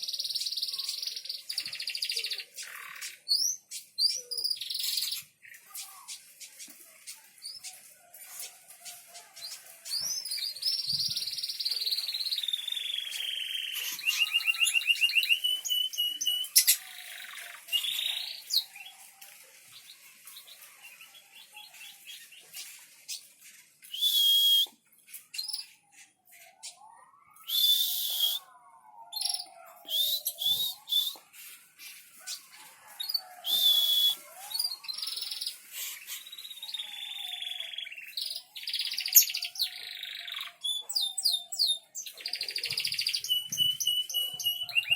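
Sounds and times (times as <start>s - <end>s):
songbirds trilling and whistling: 0.0s - 44.9s
harsh bird calls: 25.3s - 31.3s, 32.3s - 44.9s.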